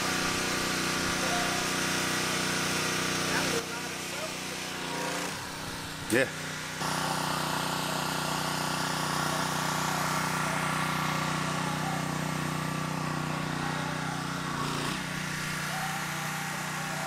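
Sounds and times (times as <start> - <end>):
small gasoline engine running: 0.0 - 17.0.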